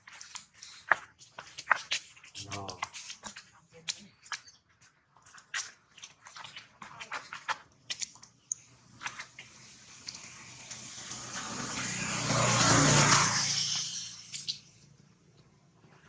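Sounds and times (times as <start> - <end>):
small clicks and taps: 5.2 - 10.8
vehicle passing: 9.8 - 15.3.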